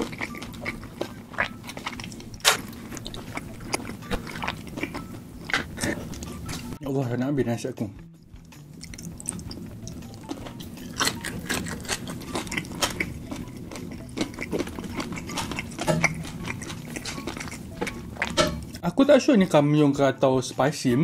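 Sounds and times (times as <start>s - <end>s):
chewing food: 0.0s - 6.8s, 8.3s - 18.8s
wet mouth clicks and smacks: 8.4s - 13.1s.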